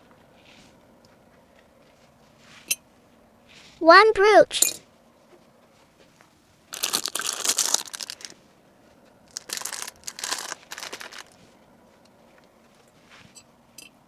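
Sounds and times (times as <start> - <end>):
packaging crinkling: 6.7 - 8.4, 9.3 - 11.4.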